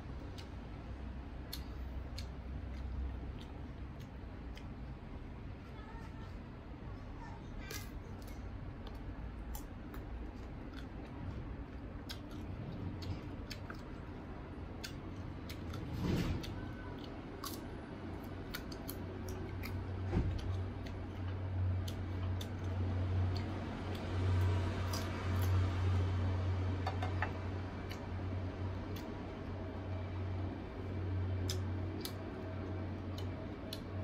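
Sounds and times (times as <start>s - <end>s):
crunching and chewing fruit: 0.0s - 6.4s, 7.5s - 34.0s
steady low hum: 0.0s - 34.0s.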